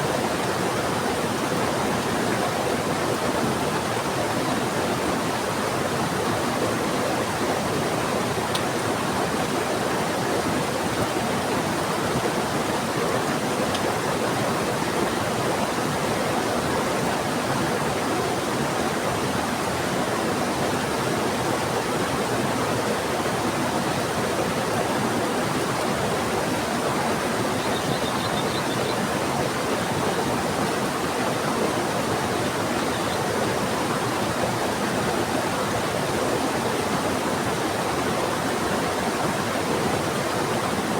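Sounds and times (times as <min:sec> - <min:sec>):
fast-flowing river: 0:00.0 - 0:40.9.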